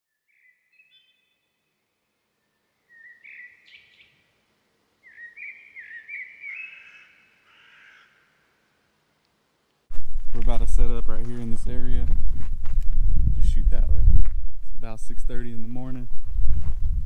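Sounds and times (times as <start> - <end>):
faint birdsong: 0.1 - 9.3.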